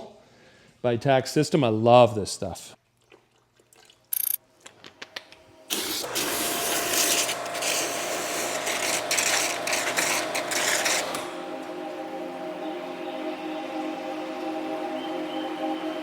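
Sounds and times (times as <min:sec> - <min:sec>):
pressure washer spraying water: 0:05.7 - 0:11.4.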